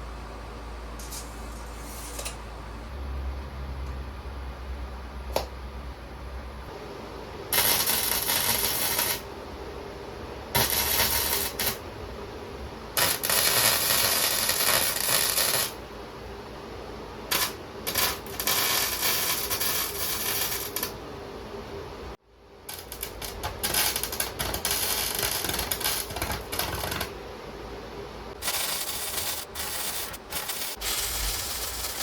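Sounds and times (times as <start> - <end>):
faint steady hum: 0.0 - 32.0
welding arc crackling: 7.5 - 9.3, 10.6 - 11.8, 13.0 - 15.8, 17.3 - 21.0, 22.7 - 27.2, 28.4 - 32.0.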